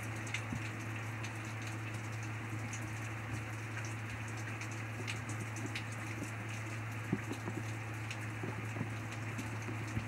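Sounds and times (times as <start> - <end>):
rain falling: 0.0 - 10.0
raindrops ticking: 0.0 - 10.0.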